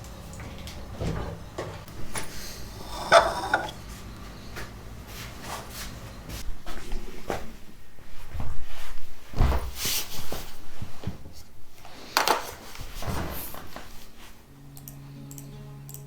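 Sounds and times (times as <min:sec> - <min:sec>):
household objects knocking and scraping: 0:02.2 - 0:03.8.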